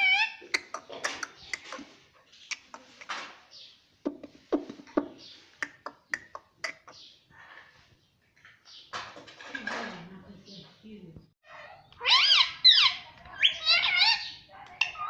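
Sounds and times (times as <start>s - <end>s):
parrot clicking and chattering: 0.4s - 3.2s, 4.1s - 7.0s.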